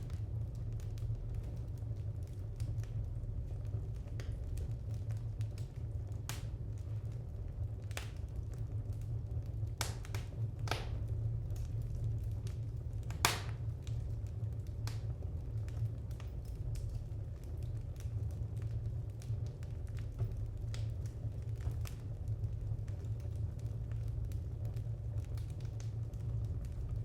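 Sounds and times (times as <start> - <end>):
fire crackling in a fireplace: 0.0 - 27.0.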